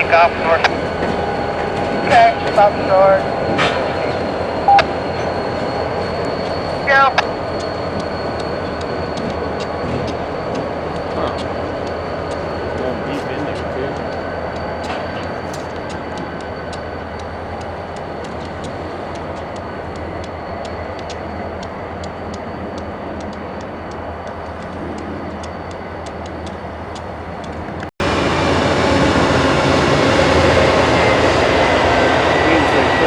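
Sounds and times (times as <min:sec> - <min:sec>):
freight cars rumbling: 0:00.0 - 0:33.0
freight car wheels clicking: 0:07.2 - 0:27.9.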